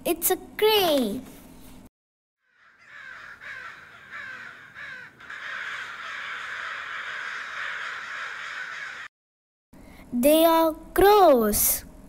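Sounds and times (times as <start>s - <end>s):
crows cawing: 2.4s - 9.1s.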